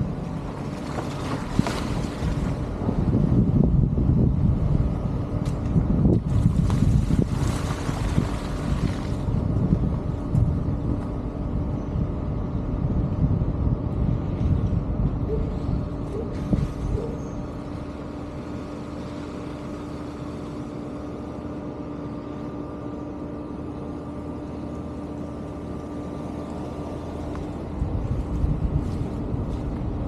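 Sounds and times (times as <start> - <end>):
wind buffeting microphone: 0.0 - 18.5, 26.3 - 30.0
vehicle engine humming: 0.0 - 30.0.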